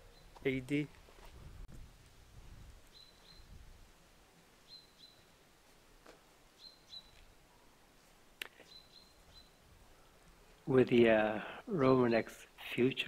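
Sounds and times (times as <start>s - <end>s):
faint high bird chirps: 2.9s - 3.6s, 4.6s - 5.4s, 6.6s - 7.8s, 8.6s - 9.6s.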